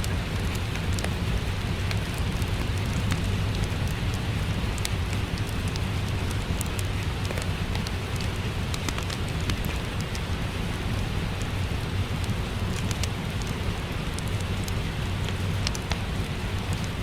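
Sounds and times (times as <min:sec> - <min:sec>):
steady rain: 0:00.0 - 0:17.0
wood fire crackling: 0:00.0 - 0:17.0.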